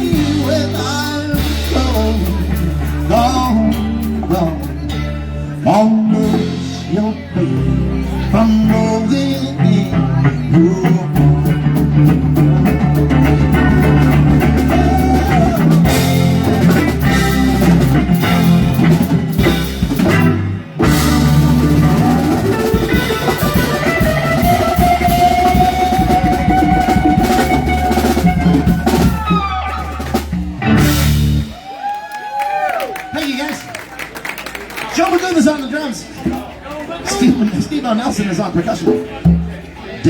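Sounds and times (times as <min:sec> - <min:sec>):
live band playing: 0:00.0 - 0:40.0
long held lead guitar note: 0:11.2 - 0:31.6.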